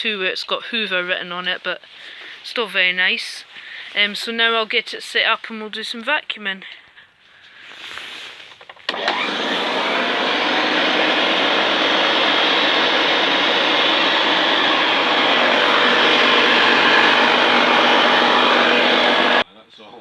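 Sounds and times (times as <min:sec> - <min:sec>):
vacuum cleaner motor whine: 0:08.9 - 0:19.4.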